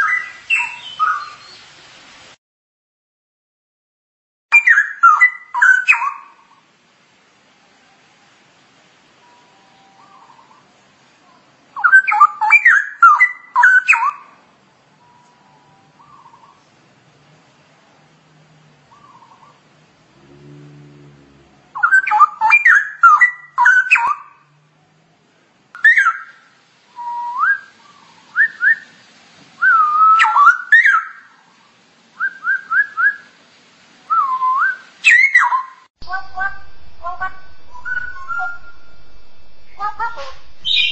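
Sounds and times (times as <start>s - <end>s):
bird singing whistled phrases: 0.0s - 1.6s, 4.5s - 6.2s, 11.8s - 14.2s, 21.8s - 24.3s, 27.0s - 28.9s, 29.6s - 31.2s, 34.1s - 40.9s.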